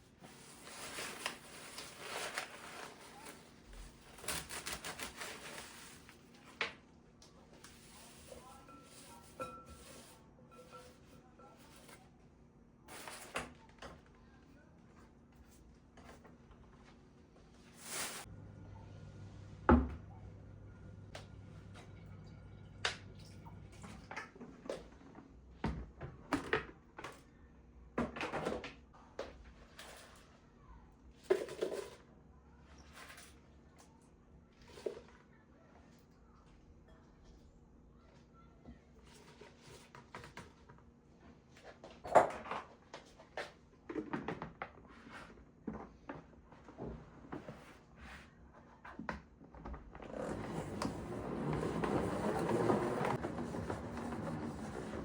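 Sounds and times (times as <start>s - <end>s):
rustling: 0.2s - 6.3s, 17.7s - 18.3s
low steady hum: 17.8s - 24.2s.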